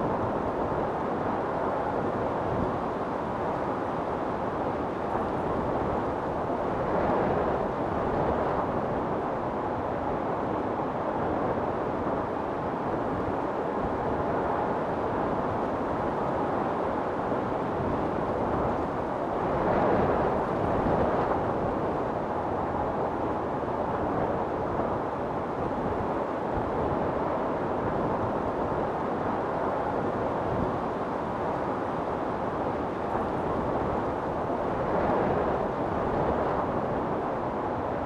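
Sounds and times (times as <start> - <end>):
storm wind blowing: 13.9 - 38.0.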